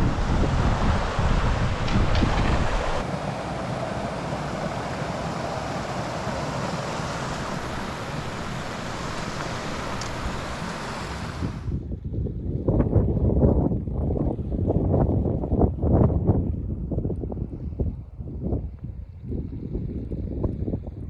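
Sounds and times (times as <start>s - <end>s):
river water rushing: 0.0s - 11.7s
wind buffeting microphone: 0.0s - 21.0s.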